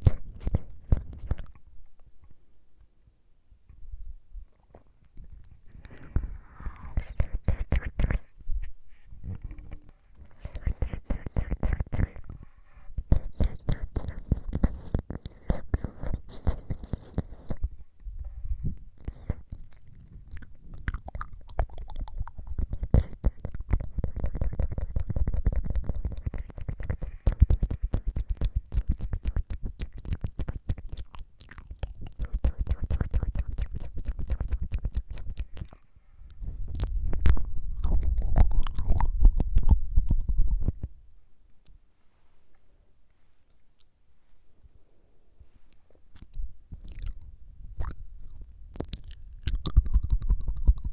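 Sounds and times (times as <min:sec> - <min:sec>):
wet tongue fluttering and clicking: 0:00.0 - 0:01.7, 0:05.5 - 0:08.2, 0:10.2 - 0:12.4, 0:13.0 - 0:17.7, 0:18.7 - 0:40.9, 0:46.2 - 0:50.9.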